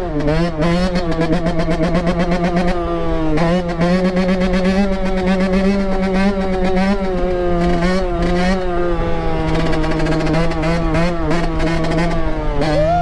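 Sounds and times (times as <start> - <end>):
two-stroke dirt bike engine revving: 0.0 - 13.0.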